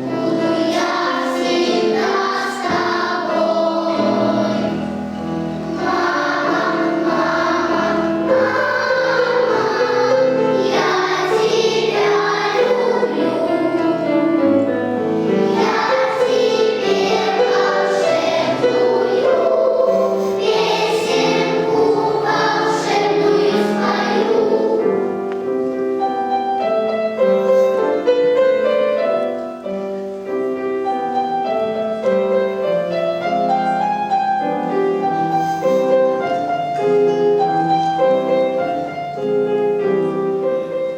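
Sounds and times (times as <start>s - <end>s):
children's choir singing: 0.0s - 40.9s
piano accompaniment: 0.0s - 40.9s.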